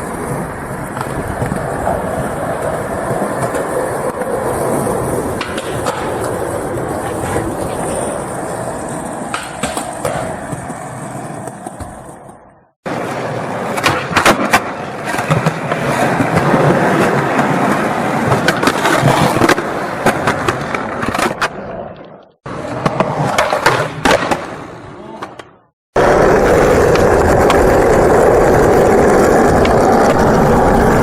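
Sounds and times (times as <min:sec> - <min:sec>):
skateboard wheels rolling on pavement: 0:00.0 - 0:25.2, 0:25.9 - 0:31.0
skateboard clacks over cracks: 0:05.3 - 0:06.4, 0:09.2 - 0:10.7, 0:13.7 - 0:17.5, 0:26.0 - 0:30.9.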